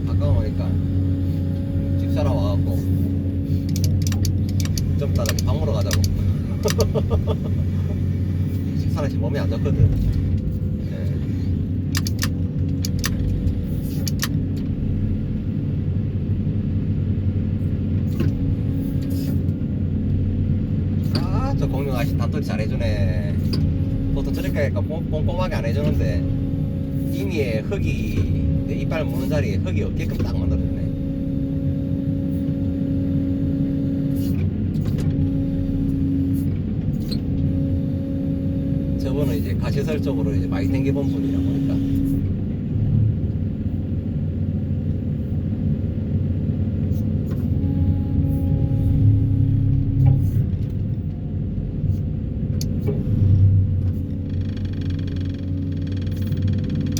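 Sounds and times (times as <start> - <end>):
constant hum tone: 0.0 - 56.9
excavator diesel engine droning: 0.0 - 56.9
sharp metallic clicks: 3.6 - 7.0, 11.8 - 14.4.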